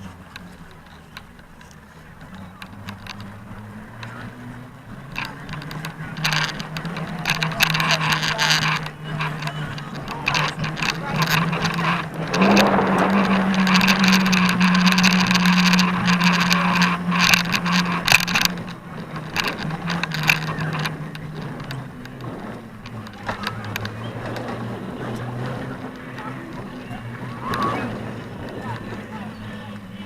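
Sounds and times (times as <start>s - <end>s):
crackly rattle: 0.0s - 30.0s
motor engine humming: 0.0s - 30.0s.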